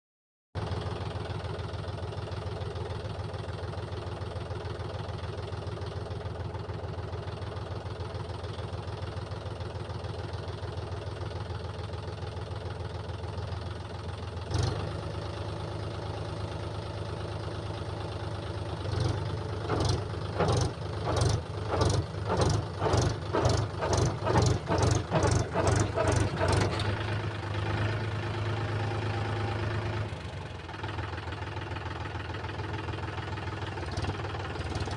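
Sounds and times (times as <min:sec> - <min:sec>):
tractor engine idling: 0:00.6 - 0:34.9
loud engine pulses: 0:18.9 - 0:30.4.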